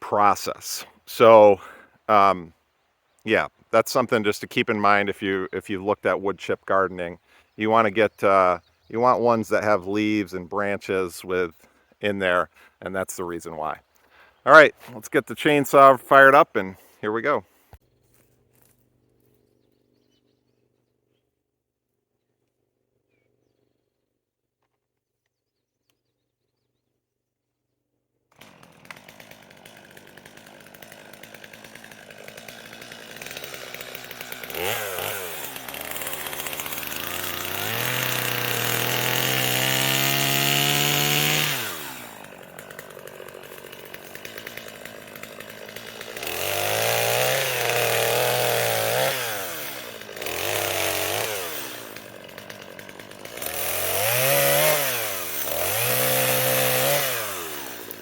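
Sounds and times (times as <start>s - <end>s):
chainsaw idling and revving: 0.0s - 2.5s, 3.3s - 17.5s, 28.3s - 58.0s.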